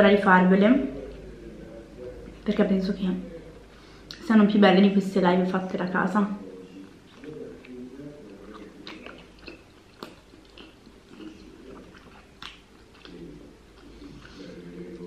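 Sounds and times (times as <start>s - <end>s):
person chewing food: 6.6s - 15.0s
wet mouth clicks: 7.1s - 14.3s.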